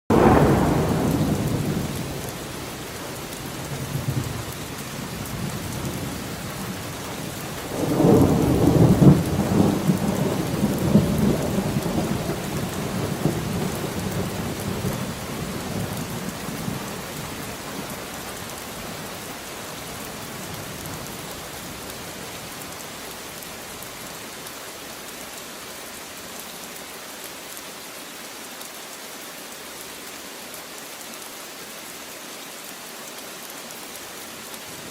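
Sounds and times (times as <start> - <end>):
thunder rolling: 0.1 - 2.3, 7.6 - 17.2
steady rain: 0.1 - 34.9.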